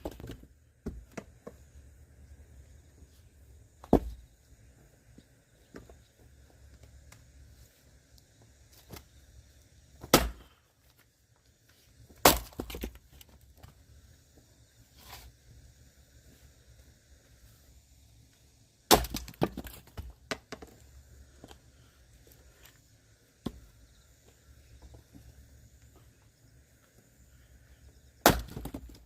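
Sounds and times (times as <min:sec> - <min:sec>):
axe chopping wood: 0:03.8 - 0:04.2, 0:10.0 - 0:10.5, 0:12.2 - 0:13.0, 0:18.9 - 0:20.1, 0:28.2 - 0:29.0
wood cracking and splitting: 0:12.2 - 0:13.3, 0:18.9 - 0:20.1, 0:28.2 - 0:29.0.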